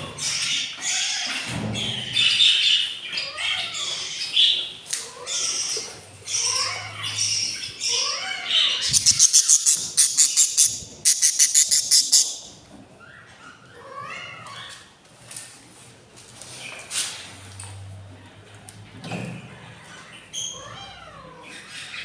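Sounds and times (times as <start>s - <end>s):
budgies chirping and squawking: 0.0s - 14.8s, 21.4s - 22.0s
fast raspy budgie chirps: 8.8s - 12.5s.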